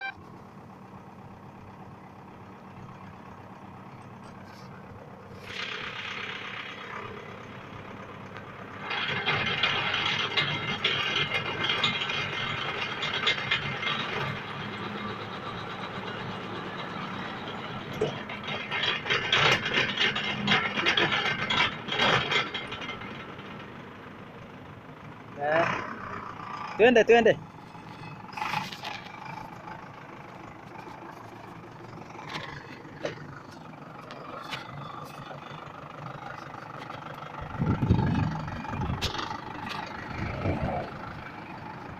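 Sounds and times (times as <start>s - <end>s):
tractor engine running: 0.0s - 41.9s
harsh rattling grinding: 1.2s - 41.9s
auger drilling into ground: 5.3s - 7.4s, 8.7s - 15.4s, 27.5s - 40.8s.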